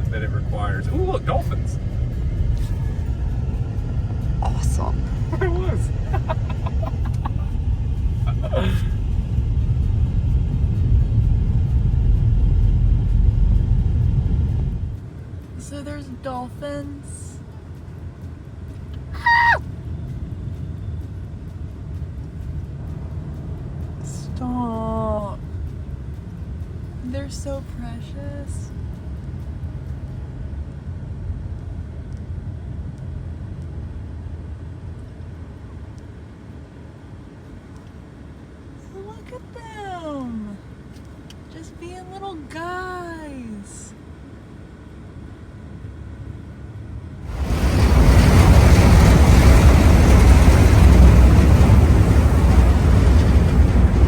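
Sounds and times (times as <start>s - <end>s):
wind buffeting microphone: 0.0s - 15.6s, 47.2s - 54.0s
low ferry engine rumble: 0.0s - 54.0s.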